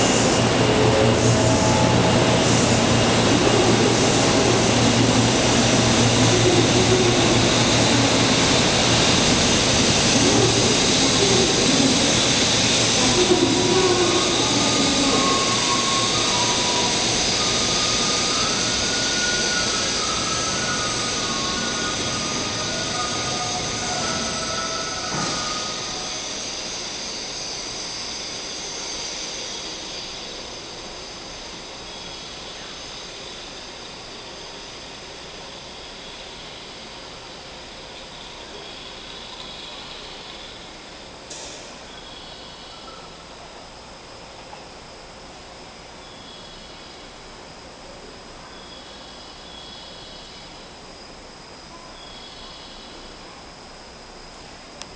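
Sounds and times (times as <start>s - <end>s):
train rumble: 0.0s - 41.8s
rising train tones: 0.0s - 54.9s.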